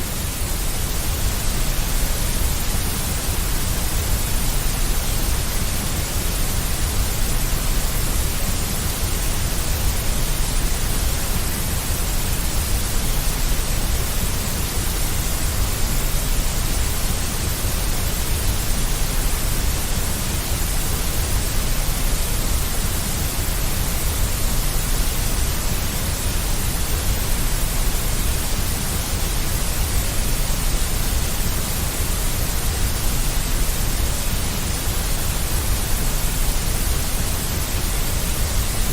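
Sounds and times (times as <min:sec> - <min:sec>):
white noise hiss with low rumble: 0:00.0 - 0:38.9.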